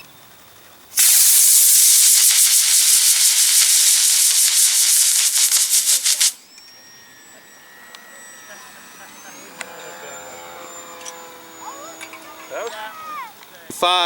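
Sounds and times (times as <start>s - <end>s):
rocket motor hissing: 0.9s - 6.5s.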